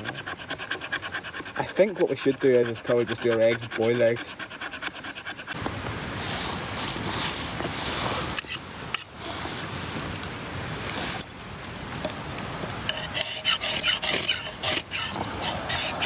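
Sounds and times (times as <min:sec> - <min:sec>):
rasping and scraping: 0:00.0 - 0:05.6, 0:12.9 - 0:16.0.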